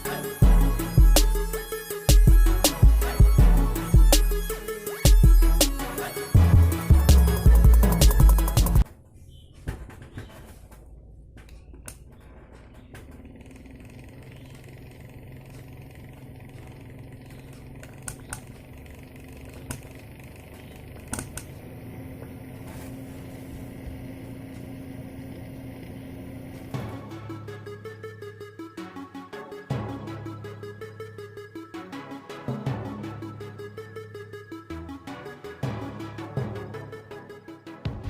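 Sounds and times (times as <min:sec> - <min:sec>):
background music: 0:00.0 - 0:08.9, 0:26.1 - 0:38.0
sharp clicks: 0:11.4 - 0:20.1, 0:21.0 - 0:21.6
small fan motor humming: 0:12.0 - 0:29.2.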